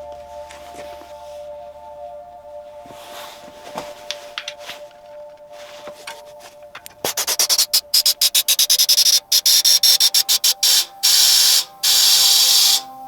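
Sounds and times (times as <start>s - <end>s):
background music: 0.0s - 13.0s
short rattling strokes: 6.8s - 12.8s
long hissing bursts: 7.0s - 13.0s.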